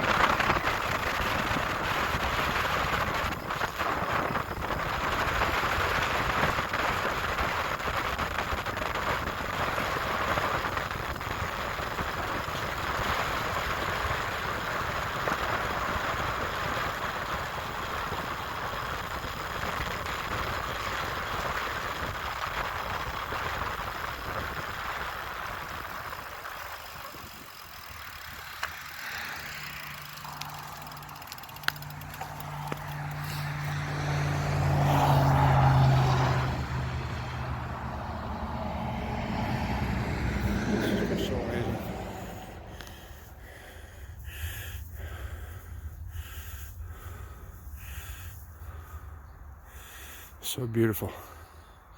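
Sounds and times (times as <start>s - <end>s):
low engine drone: 0.0s - 50.2s
wind noise from cycling: 0.0s - 50.4s.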